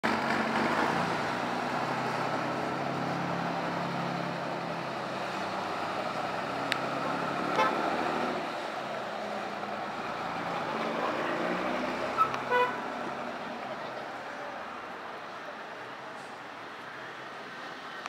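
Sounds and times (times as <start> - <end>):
street traffic noise: 0.0 - 18.0
short horn toot: 7.5 - 7.8.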